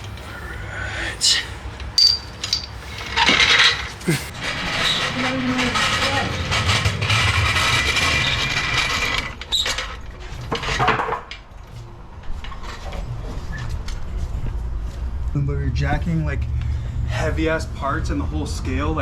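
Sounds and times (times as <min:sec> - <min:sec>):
metal tools clattering: 0:01.2 - 0:04.3.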